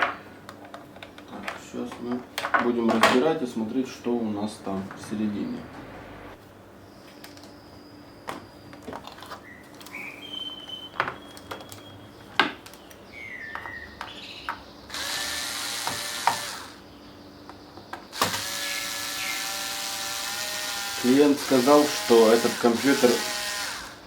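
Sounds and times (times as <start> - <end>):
electric screwdriver whirring: 14.9 - 16.8, 18.2 - 24.0.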